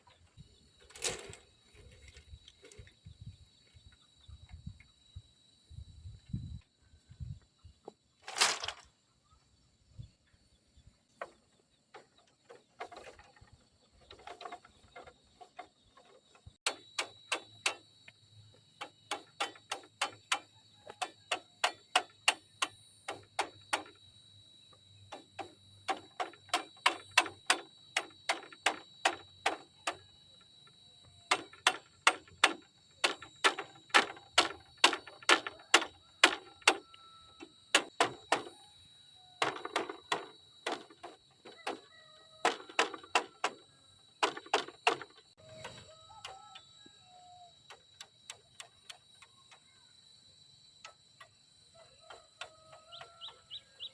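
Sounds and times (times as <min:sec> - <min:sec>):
tool striking wood: 0:18.8 - 0:24.0, 0:25.1 - 0:30.0, 0:31.3 - 0:38.6, 0:39.4 - 0:41.8, 0:42.4 - 0:45.4.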